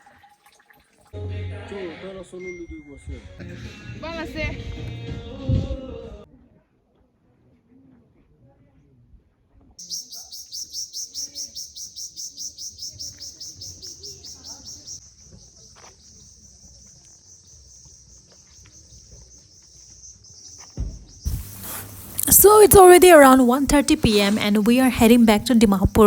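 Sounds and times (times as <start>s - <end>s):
insect shrilling high-pitched: 21.3s - 23.4s.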